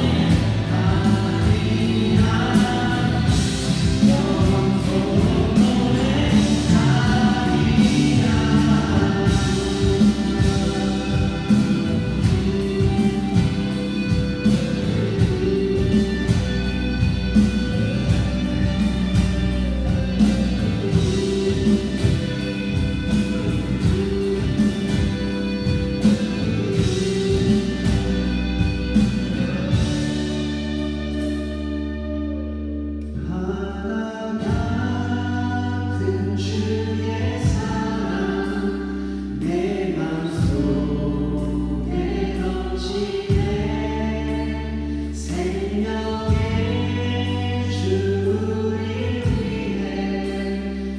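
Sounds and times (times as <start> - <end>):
group singing worship song: 0.0 - 19.2, 20.1 - 30.4, 33.2 - 50.9
instrumental accompaniment with beat: 0.0 - 31.6.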